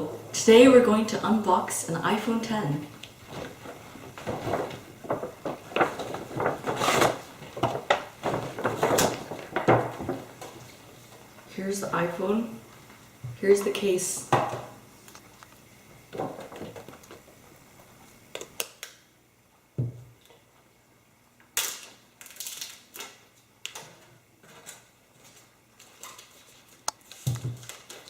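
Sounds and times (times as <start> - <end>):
box and packaging handling: 3.0 - 10.8.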